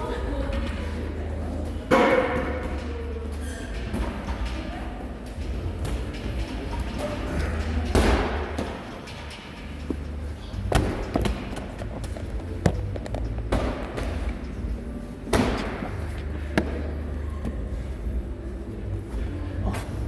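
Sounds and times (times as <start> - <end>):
steady low hum: 0.0 - 20.0
heavy thuds on gym floor: 10.6 - 14.4.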